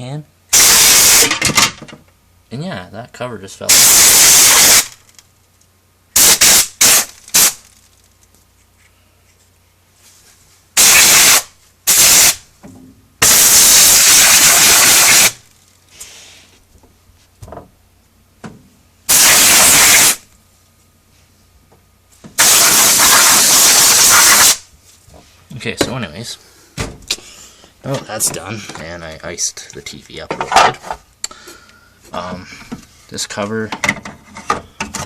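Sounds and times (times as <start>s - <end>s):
compressed air duster hissing: 0.5s - 1.4s, 3.7s - 5.0s, 6.2s - 7.7s, 10.8s - 12.4s, 13.2s - 16.6s, 19.1s - 20.3s, 22.4s - 24.7s.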